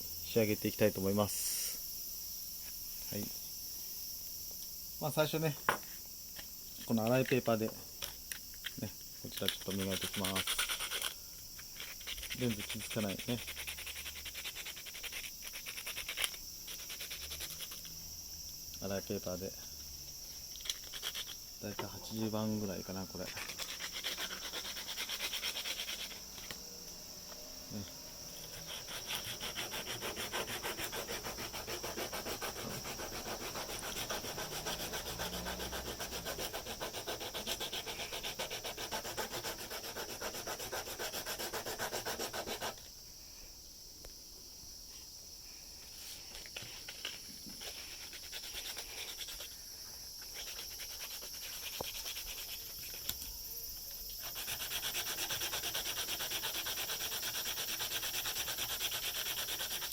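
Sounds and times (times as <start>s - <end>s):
sandpaper scraping plastic: 9.3s - 17.8s, 23.2s - 26.6s, 28.4s - 42.8s, 46.1s - 49.5s, 50.2s - 53.2s, 54.2s - 59.9s.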